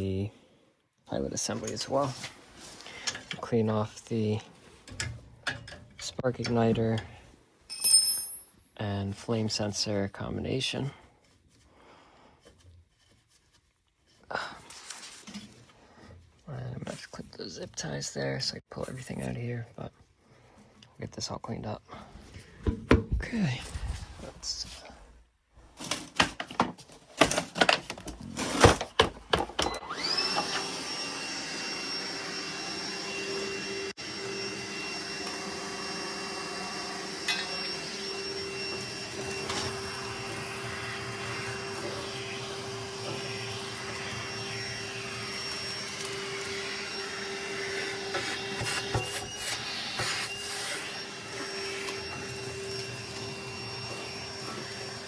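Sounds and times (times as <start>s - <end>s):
vacuum motor whining: 29.6s - 55.0s.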